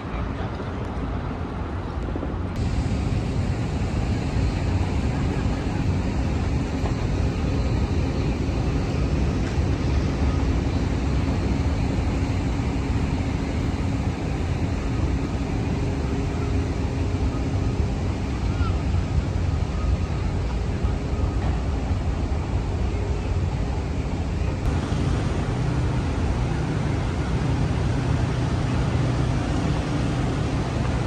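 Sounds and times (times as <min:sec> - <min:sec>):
distant traffic rumble: 0:02.6 - 0:31.0.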